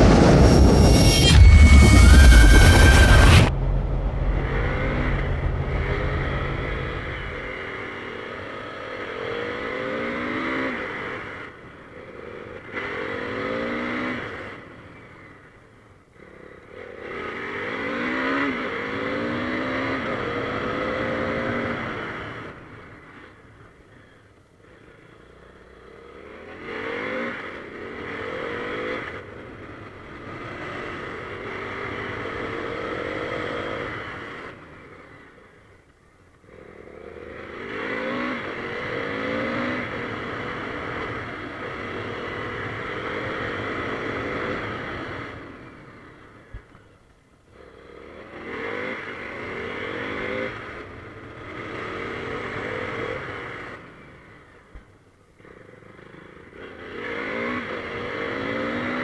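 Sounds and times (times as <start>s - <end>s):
motorcycle engine accelerating: 0.0s - 7.7s.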